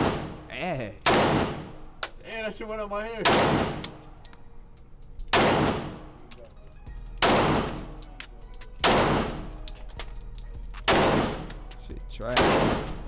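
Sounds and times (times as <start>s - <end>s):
gunshots with ringing decay: 0.0s - 2.0s, 3.2s - 4.2s, 5.3s - 6.2s, 7.2s - 8.0s, 8.8s - 9.7s, 10.8s - 11.7s, 12.3s - 13.0s.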